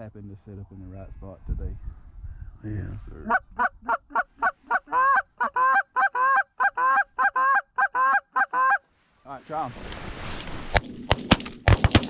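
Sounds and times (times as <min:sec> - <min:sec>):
goose call clucks and honks: 0:03.2 - 0:08.9.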